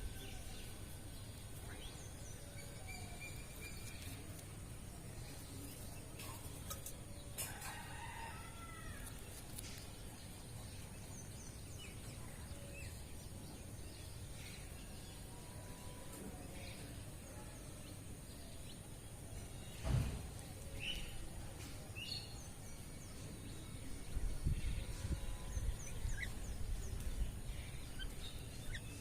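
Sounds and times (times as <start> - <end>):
low background noise: 0.0 - 29.0
bird chirps: 24.8 - 29.0.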